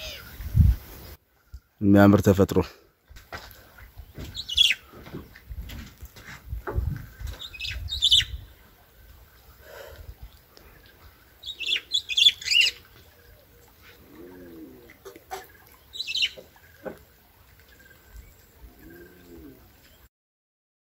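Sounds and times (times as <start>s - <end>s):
low rounded bird calls: 0.0s - 1.8s, 3.6s - 5.5s, 6.7s - 20.1s
high bird chirps: 7.4s - 8.5s, 11.4s - 13.0s, 15.3s - 16.8s.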